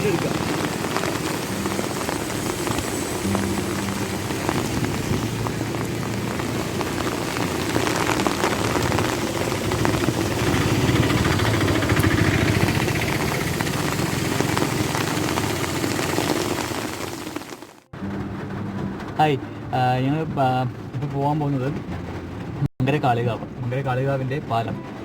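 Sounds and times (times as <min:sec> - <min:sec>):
low steady rumble: 0:00.0 - 0:15.6, 0:18.0 - 0:25.0
heavy rain hissing: 0:00.0 - 0:19.6.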